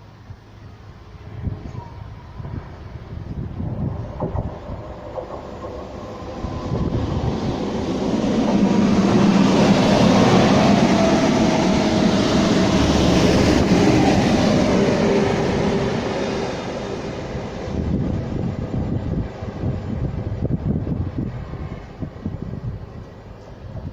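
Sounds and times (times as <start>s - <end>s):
train wheels rumbling on rails: 1.0s - 23.9s.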